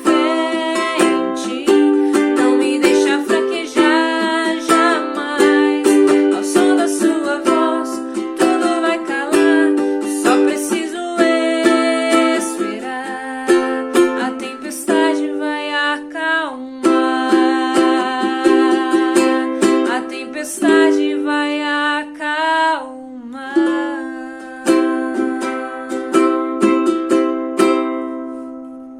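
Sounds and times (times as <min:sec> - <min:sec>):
plucked string instrument strumming: 0:00.0 - 0:22.5, 0:23.2 - 0:28.9.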